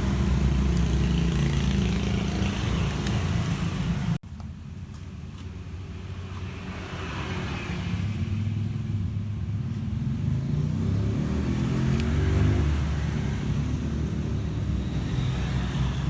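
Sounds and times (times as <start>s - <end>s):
scooter engine running: 0.0s - 4.1s.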